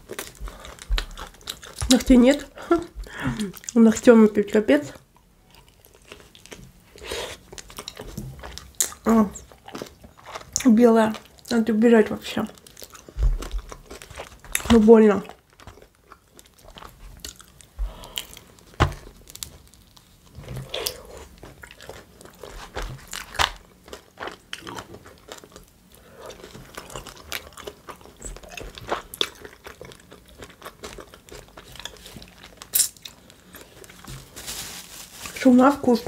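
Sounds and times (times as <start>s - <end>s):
wet chewing: 0.0s - 3.8s, 12.5s - 34.2s.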